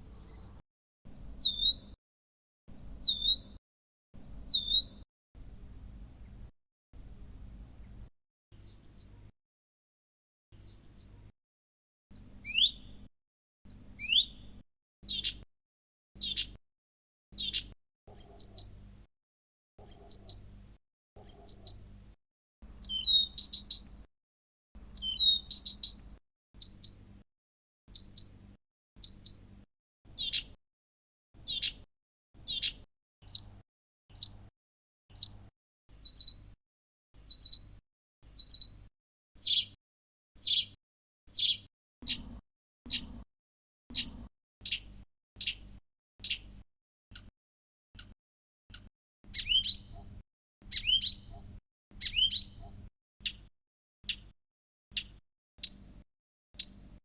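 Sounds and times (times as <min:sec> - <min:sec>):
warbler calling: 0:00.0 - 0:01.9, 0:02.7 - 0:03.6, 0:04.2 - 0:06.4, 0:07.0 - 0:07.9, 0:08.7 - 0:09.2, 0:10.7 - 0:11.1, 0:12.2 - 0:12.9, 0:13.7 - 0:14.5, 0:15.1 - 0:15.4, 0:16.2 - 0:16.6, 0:17.4 - 0:18.8, 0:19.8 - 0:20.5, 0:21.2 - 0:21.8, 0:22.6 - 0:23.9, 0:24.8 - 0:26.0, 0:26.6 - 0:27.0, 0:27.9 - 0:28.4, 0:29.0 - 0:29.4, 0:30.1 - 0:30.6, 0:31.4 - 0:31.8, 0:32.4 - 0:33.5, 0:34.2 - 0:34.4, 0:35.2 - 0:35.4, 0:36.0 - 0:36.5, 0:37.2 - 0:37.7, 0:38.3 - 0:38.8, 0:39.4 - 0:39.8, 0:40.4 - 0:42.3, 0:42.9 - 0:43.2, 0:43.9 - 0:46.5, 0:48.0 - 0:53.4, 0:55.0 - 0:55.8, 0:56.6 - 0:56.8.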